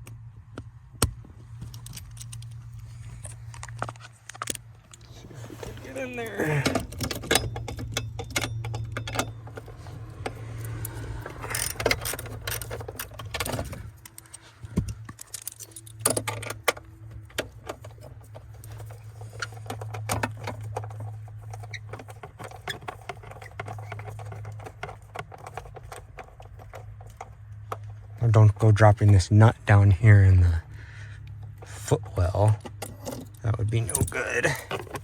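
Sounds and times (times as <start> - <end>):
ratchet clicking: 7.2 - 13.4.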